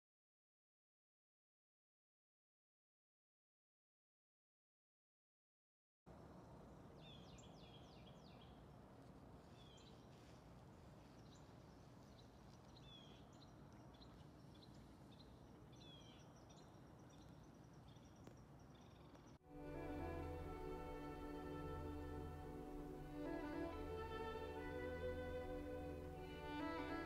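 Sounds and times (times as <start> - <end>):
low steady hiss: 6.1 - 27.0
small birds chirping: 7.0 - 8.7, 9.4 - 19.4.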